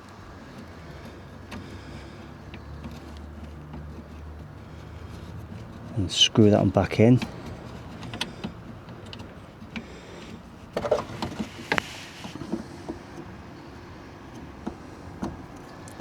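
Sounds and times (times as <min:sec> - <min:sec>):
short rustle: 0:00.0 - 0:13.4.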